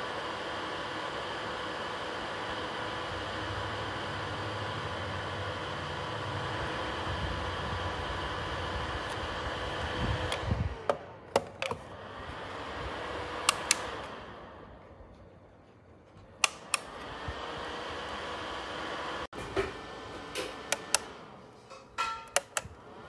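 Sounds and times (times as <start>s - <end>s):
space heater fan whirring: 0.0s - 23.0s
sharp clicks: 13.5s - 13.9s, 16.4s - 17.1s, 22.3s - 22.8s.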